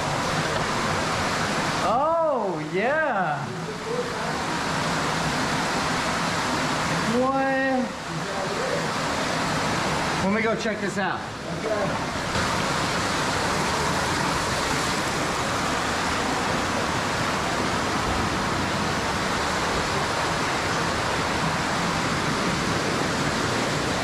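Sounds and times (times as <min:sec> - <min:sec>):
rushing water in a cave: 0:00.0 - 0:24.0.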